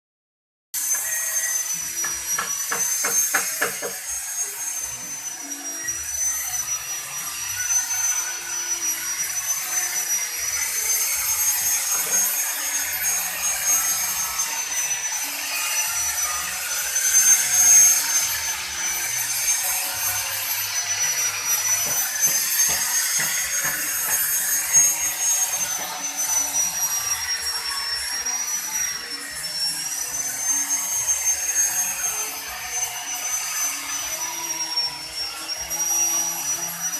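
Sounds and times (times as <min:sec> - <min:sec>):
power tool whining on wood: 0:00.8 - 0:36.9.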